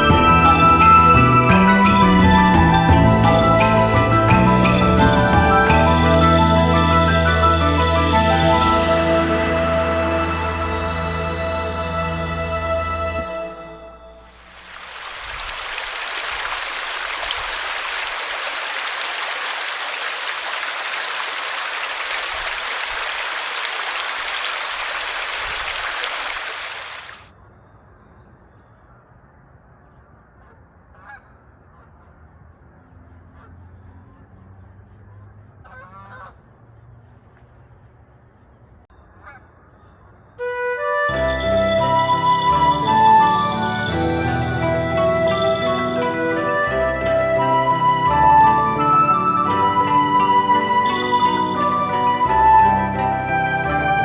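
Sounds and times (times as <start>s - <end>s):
geese honking: 35.6s - 36.4s.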